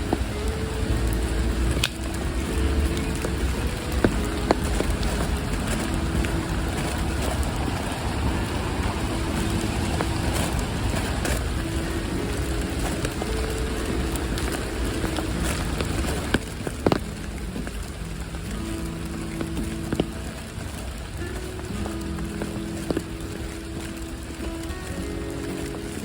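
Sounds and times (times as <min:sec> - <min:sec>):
rain drops ticking: 0:00.0 - 0:26.0.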